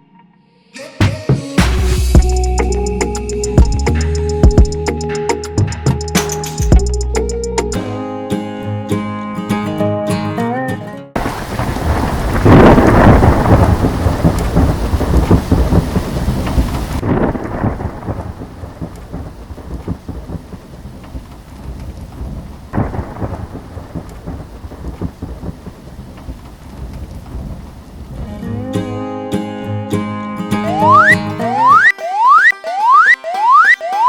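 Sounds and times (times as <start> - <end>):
thunder rumbling: 11.2 - 28.4, 30.6 - 31.9
steady rain: 11.2 - 28.5.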